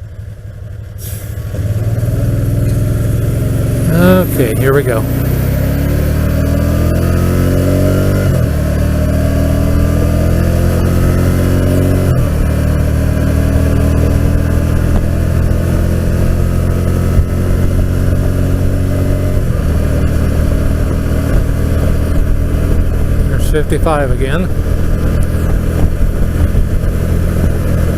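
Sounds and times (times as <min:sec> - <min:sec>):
motorcycle engine accelerating: 0:00.0 - 0:27.9
wind rush over microphone: 0:24.4 - 0:27.9.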